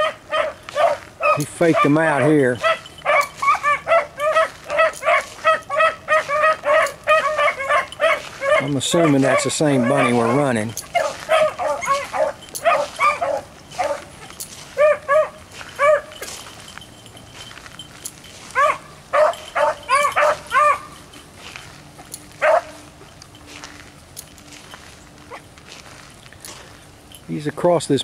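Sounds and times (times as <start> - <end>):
dogs baying and yelping: 0.0 - 27.3.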